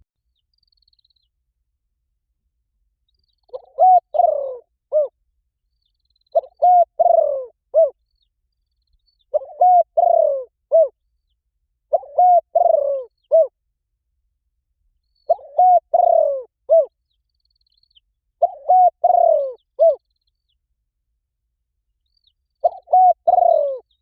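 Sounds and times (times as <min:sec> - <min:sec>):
dove cooing: 0:03.5 - 0:05.2, 0:06.3 - 0:08.0, 0:09.3 - 0:10.9, 0:11.9 - 0:13.6, 0:15.3 - 0:16.9, 0:18.4 - 0:20.0, 0:22.6 - 0:24.0.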